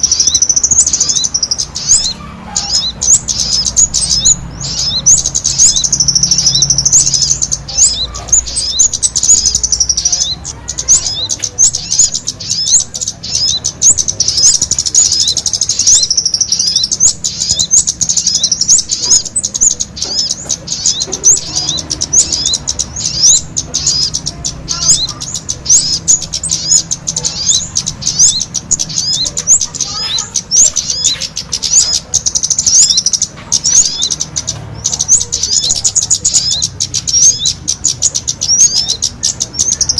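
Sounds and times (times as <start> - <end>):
small birds calling and chattering: 0.0 - 39.9.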